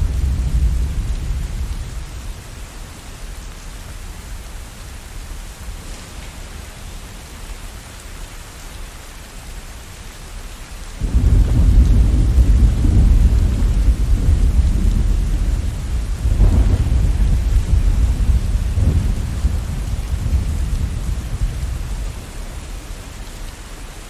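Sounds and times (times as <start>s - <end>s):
thunder rumbling: 0.0s - 2.7s, 5.3s - 8.0s, 11.0s - 23.7s
rain hiss: 0.0s - 24.0s.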